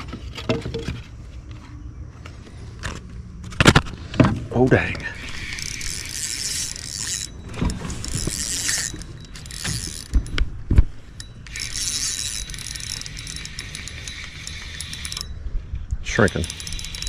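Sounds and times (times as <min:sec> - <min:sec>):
fishing reel whirring: 0:05.2 - 0:15.4, 0:16.1 - 0:17.0.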